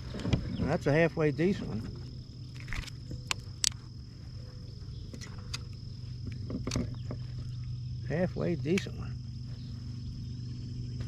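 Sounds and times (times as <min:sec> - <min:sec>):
crickets chirring: 0:00.0 - 0:11.0
low steady hum: 0:00.0 - 0:11.0
sharp clicks and knocks: 0:05.1 - 0:07.2.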